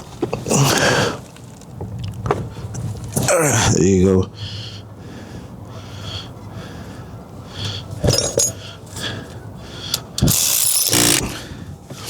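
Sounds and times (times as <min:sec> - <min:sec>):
light metallic clinks: 0:08.0 - 0:08.6.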